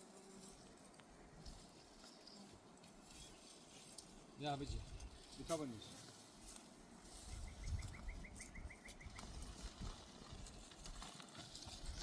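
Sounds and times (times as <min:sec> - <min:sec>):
bird chirping: 0:07.1 - 0:09.3.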